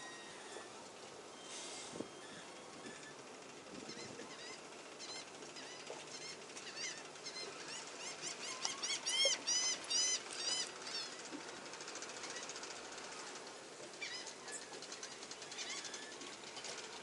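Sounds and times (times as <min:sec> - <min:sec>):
birds chirping: 0:03.8 - 0:13.1, 0:13.9 - 0:16.8.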